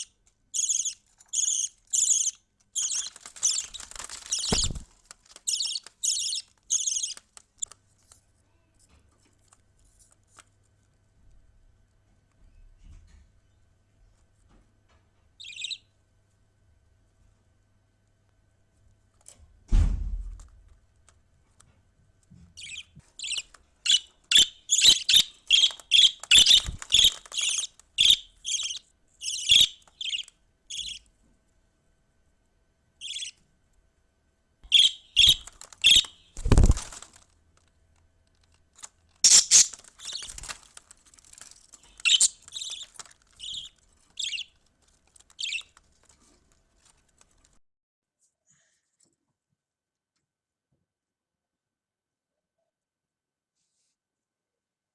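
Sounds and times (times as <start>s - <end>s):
budgerigar chirping: 0.0s - 4.8s, 5.4s - 7.2s, 15.4s - 15.8s, 22.6s - 31.0s, 33.0s - 33.4s, 34.6s - 36.8s, 39.2s - 40.5s, 42.0s - 44.5s, 45.4s - 45.7s.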